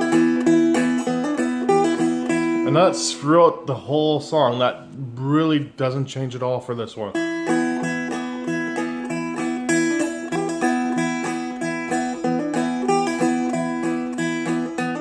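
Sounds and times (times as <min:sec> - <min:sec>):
dulcimer picking blues melody: 0:00.0 - 0:15.0.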